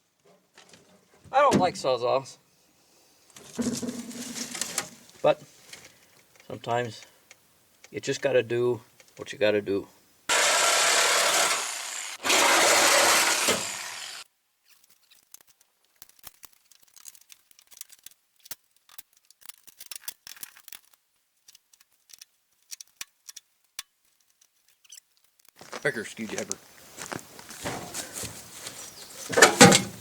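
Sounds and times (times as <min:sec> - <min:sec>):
reciprocating saw cutting sheet metal: 0:10.3 - 0:14.2.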